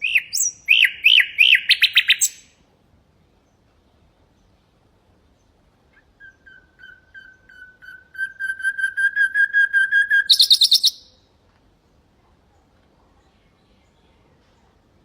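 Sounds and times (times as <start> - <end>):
nightingale singing: 0.0 - 2.6, 5.3 - 11.2.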